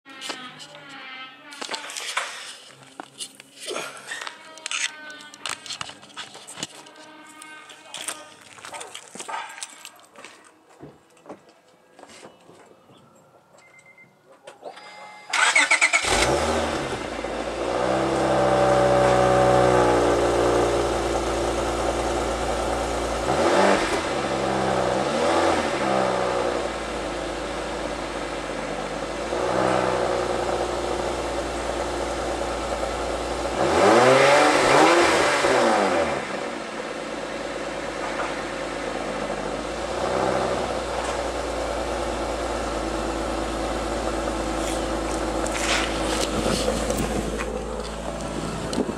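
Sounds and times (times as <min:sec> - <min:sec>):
car engine starting and idling: 0:14.6 - 0:48.9.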